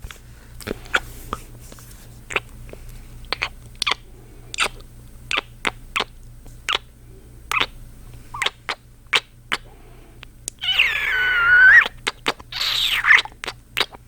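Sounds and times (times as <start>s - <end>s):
faint steady hum: 0.0s - 14.0s
wet kissing lip smacks: 2.3s - 2.5s, 3.3s - 6.1s, 7.5s - 7.7s, 8.4s - 9.6s, 10.5s - 14.0s.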